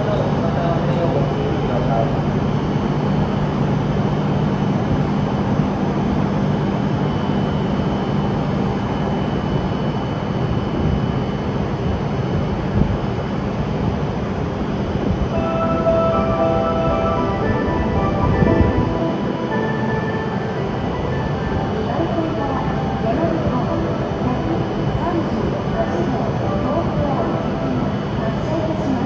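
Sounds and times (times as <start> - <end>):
train running noise: 0.0 - 29.0
platform melody: 15.3 - 29.0.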